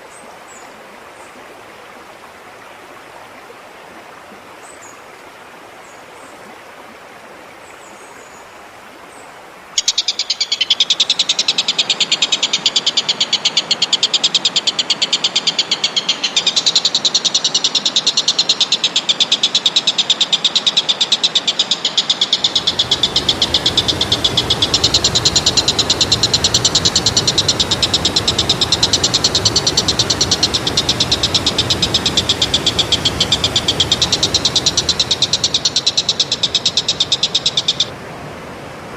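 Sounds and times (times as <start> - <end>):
rapid pulsing animal trill: 20.2 - 37.9
rushing noise: 22.3 - 38.9.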